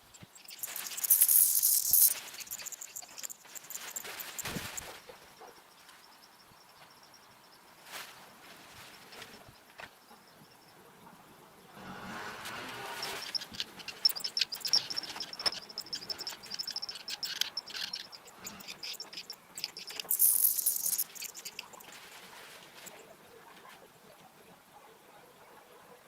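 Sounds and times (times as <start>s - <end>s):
clicks and rustling in nest: 0.1s - 5.1s, 12.5s - 23.8s
nestling birds cheeping: 12.7s - 22.1s.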